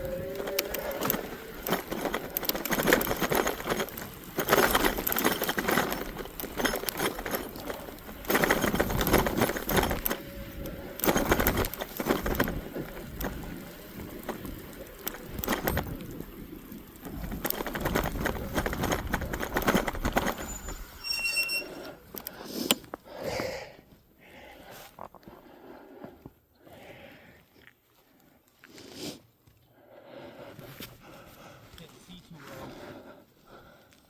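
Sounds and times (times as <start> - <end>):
faint electric motor whine: 0.0 - 4.9
tyres crunching through snow: 0.0 - 23.0
bike rattling and clicking: 0.0 - 23.1.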